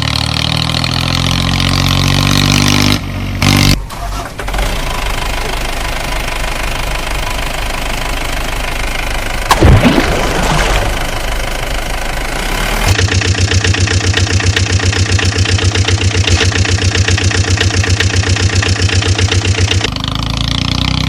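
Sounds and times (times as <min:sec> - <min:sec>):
engine humming: 0:00.0 - 0:21.0
engine knocking: 0:03.9 - 0:09.5, 0:10.9 - 0:20.7.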